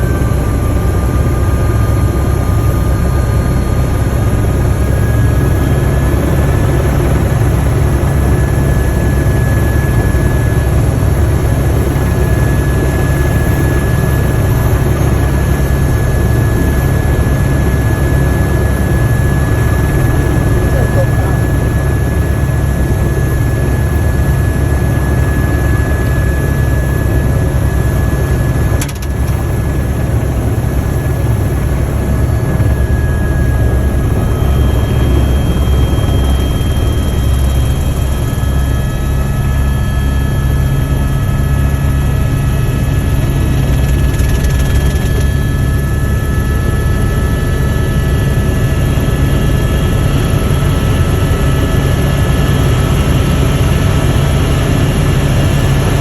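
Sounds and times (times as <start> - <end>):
faint high turbine whine: 0.0 - 56.0
helicopter rotor drone: 0.0 - 56.0.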